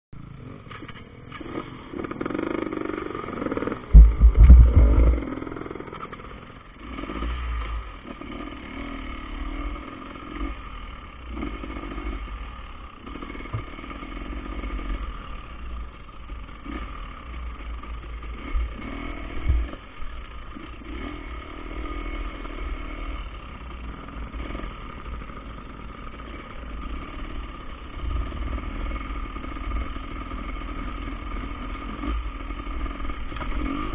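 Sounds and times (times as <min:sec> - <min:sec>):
dirt bike engine revving: 0:01.4 - 0:33.9
heavy low thumps: 0:03.9 - 0:05.5.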